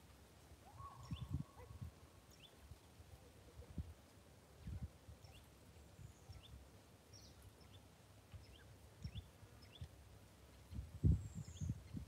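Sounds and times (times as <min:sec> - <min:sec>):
faint bird chirps: 0:00.7 - 0:02.6.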